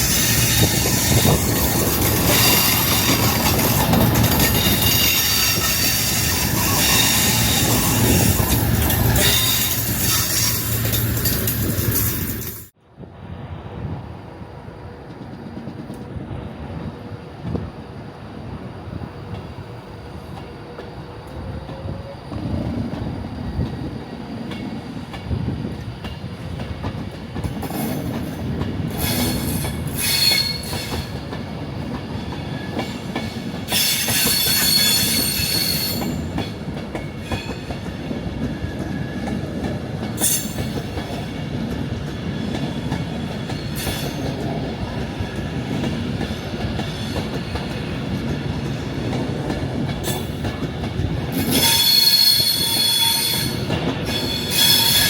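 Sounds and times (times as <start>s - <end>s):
train rumbling on rails: 0.0s - 55.0s
high-pitched wheel squeal: 4.5s - 10.9s, 29.0s - 31.1s, 33.7s - 36.2s, 51.4s - 55.0s.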